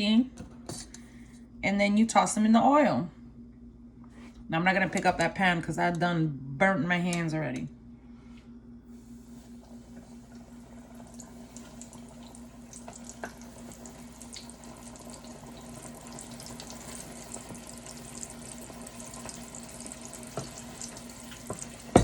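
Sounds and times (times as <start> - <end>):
chicken wings sizzling in oil: 9.1 - 22.0.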